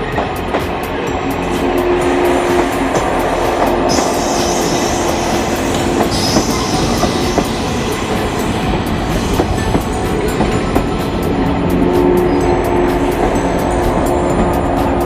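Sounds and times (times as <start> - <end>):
train wheels clacking: 0.0 - 15.0
high-pitched squeals: 1.4 - 10.3.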